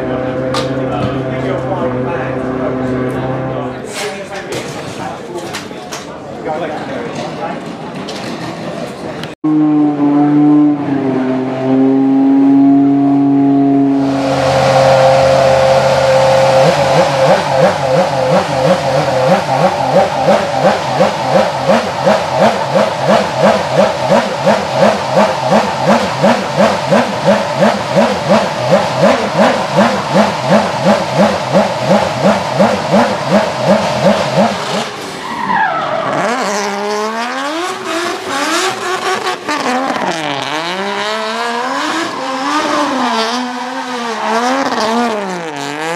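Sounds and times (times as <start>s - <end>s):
race car engine revving: 9.4s - 45.9s.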